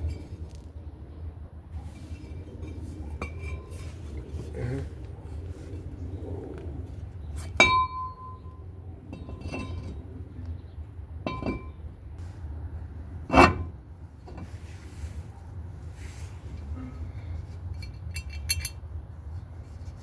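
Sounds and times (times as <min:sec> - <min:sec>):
metal clinking on metal: 0:11.2 - 0:11.7, 0:17.7 - 0:18.8.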